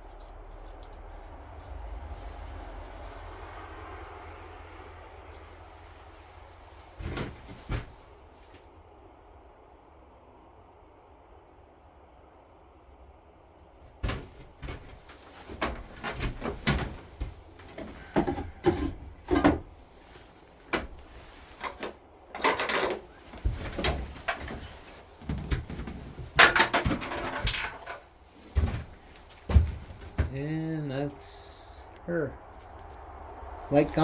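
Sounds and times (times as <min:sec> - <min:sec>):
knocks and clunks of handling: 0:14.0 - 0:30.4.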